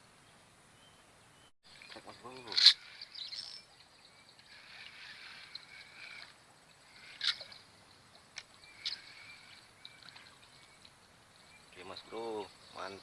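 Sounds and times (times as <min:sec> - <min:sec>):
insects chirring: 0:01.8 - 0:13.0.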